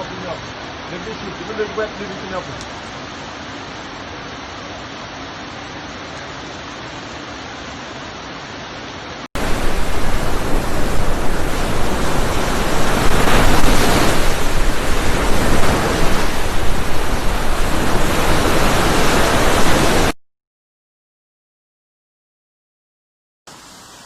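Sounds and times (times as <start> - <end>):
steady hiss: 0.0 - 19.8, 23.5 - 24.0
floodwater rushing: 0.0 - 20.2.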